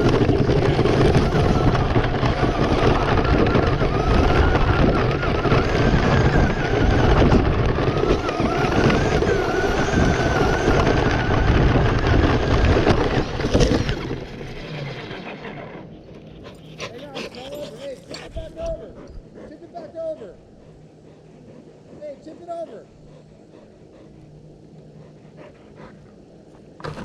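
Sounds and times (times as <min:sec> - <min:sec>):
rc truck electric motor whining: 0:00.0 - 0:15.9.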